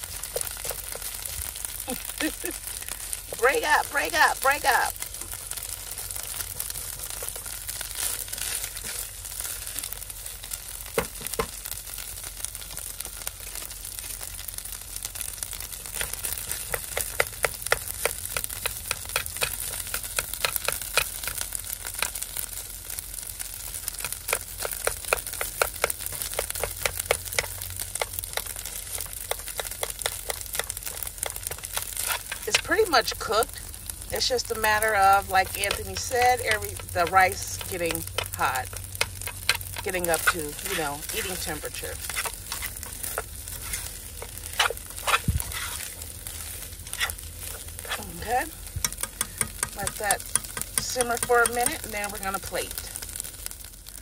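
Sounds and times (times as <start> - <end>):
food sizzling in a pot: 0.0 - 54.0
spatula scraping a pot: 28.4 - 33.4, 34.1 - 48.3.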